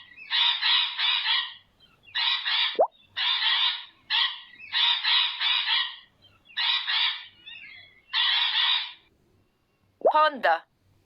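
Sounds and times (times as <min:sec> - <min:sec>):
parrot squawking: 0:02.2 - 0:07.3, 0:08.1 - 0:09.0.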